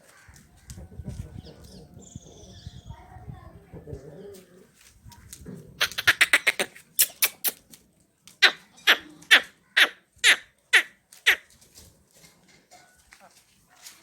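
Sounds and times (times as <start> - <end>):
animal harsh calls: 5.8 - 7.6, 8.4 - 11.4.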